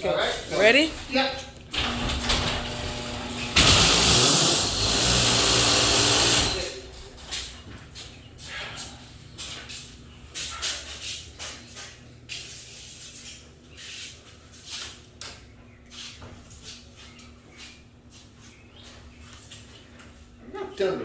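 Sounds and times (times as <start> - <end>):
garage door opener motor humming: 1.6 - 7.0.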